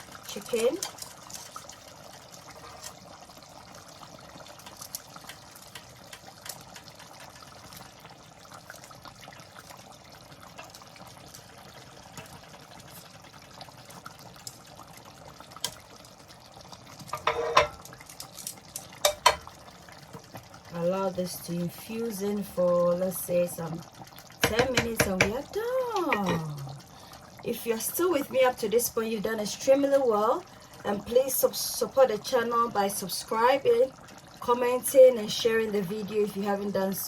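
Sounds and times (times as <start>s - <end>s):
gravy simmering and bubbling: 0.0s - 37.0s
utensil clattering against pot: 17.1s - 19.5s, 24.4s - 26.4s.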